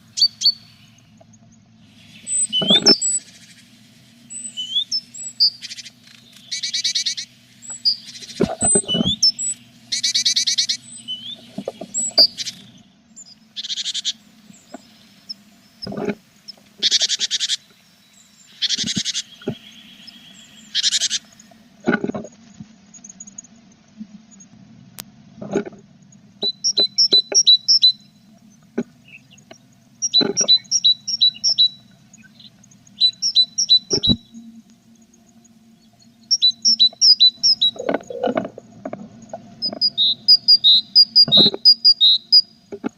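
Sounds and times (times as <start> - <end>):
faint low hum: 0.0 - 42.9
high bird chirps: 0.1 - 1.2, 1.9 - 3.6, 4.2 - 15.4, 16.8 - 21.5, 26.4 - 28.2, 29.0 - 34.5, 35.8 - 38.2, 39.6 - 42.6
chicks hissy calling: 18.5 - 21.5, 29.0 - 34.4, 36.3 - 38.3.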